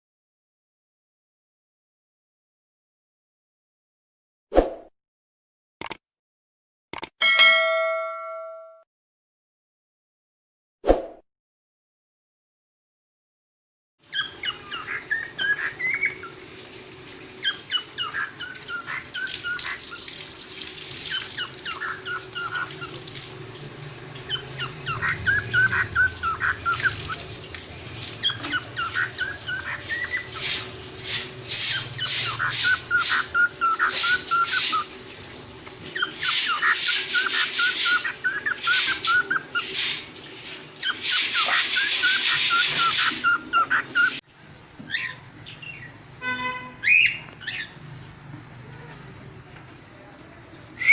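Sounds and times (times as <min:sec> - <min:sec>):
cockatiel harsh screeching: 0:24.3 - 0:26.9, 0:28.2 - 0:34.9, 0:35.9 - 0:40.0, 0:40.8 - 0:44.2
cockatiel whistled chirps: 0:31.7 - 0:34.9, 0:36.0 - 0:39.6, 0:40.8 - 0:44.2.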